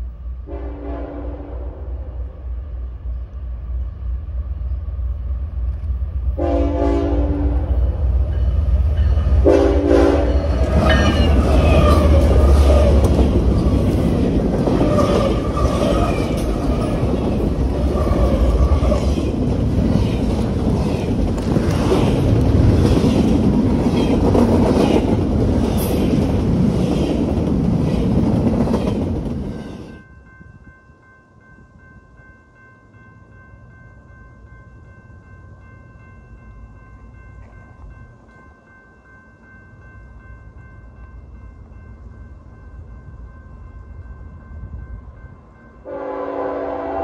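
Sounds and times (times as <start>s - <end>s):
locomotive horn: 0.5s - 2.2s, 6.4s - 7.8s, 9.4s - 11.2s, 45.8s - 47.0s
locomotive engines rumbling: 3.0s - 30.0s.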